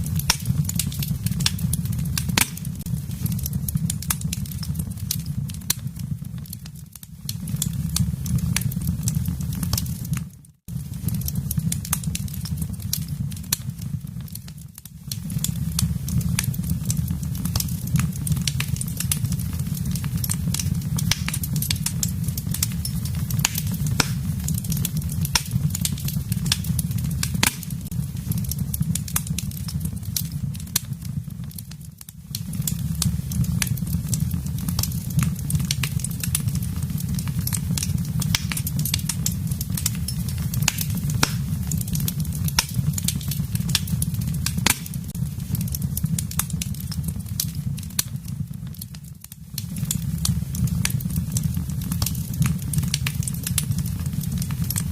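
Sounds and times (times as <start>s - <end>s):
fire crackling and popping: 0.0s - 54.9s
low rumble of flames: 0.0s - 54.9s.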